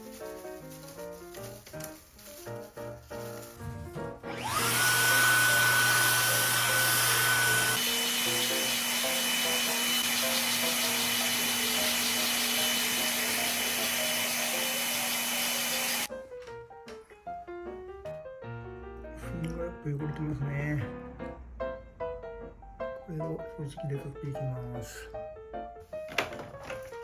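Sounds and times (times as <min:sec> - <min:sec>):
vacuum cleaner motor running: 0:03.4 - 0:16.1.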